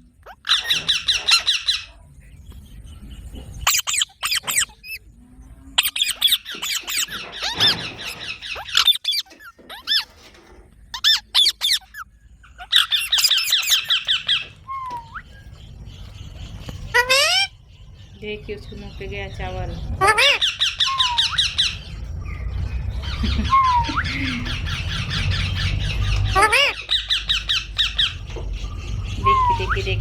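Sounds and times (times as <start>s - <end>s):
parrot squeaky begging calls: 0.2s - 1.9s, 3.6s - 5.0s, 5.8s - 10.2s, 10.9s - 15.4s, 16.9s - 17.6s, 20.0s - 21.9s, 23.0s - 28.3s.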